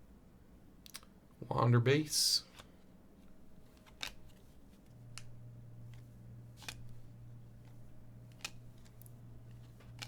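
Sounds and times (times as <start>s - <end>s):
faint steady hum: 0.0s - 10.0s
cards rustling: 2.6s - 10.0s
trading cards clicking: 5.1s - 7.0s, 7.6s - 10.0s.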